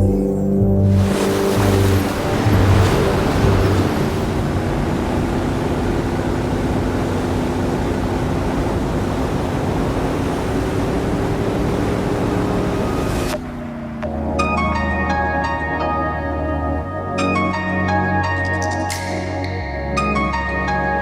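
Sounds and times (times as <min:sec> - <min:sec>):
low engine hum: 0:00.0 - 0:17.7
water and wind rushing: 0:00.8 - 0:14.6.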